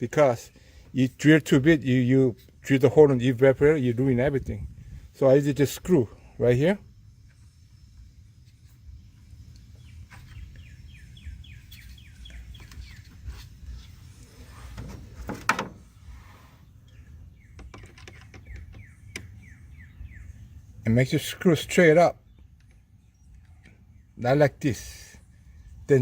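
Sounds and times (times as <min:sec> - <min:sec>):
bird chirping: 0:07.2 - 0:14.5, 0:16.3 - 0:26.0
rustle or scrape: 0:11.7 - 0:16.6.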